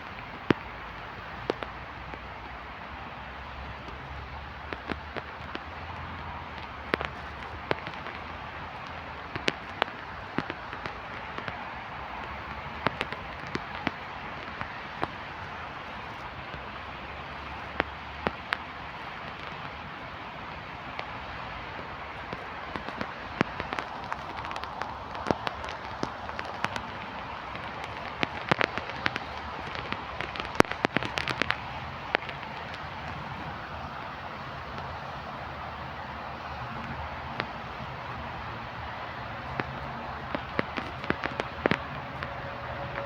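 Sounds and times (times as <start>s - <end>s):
raindrops tapping: 0.0s - 19.8s, 20.5s - 43.0s
rain hissing: 10.0s - 43.0s.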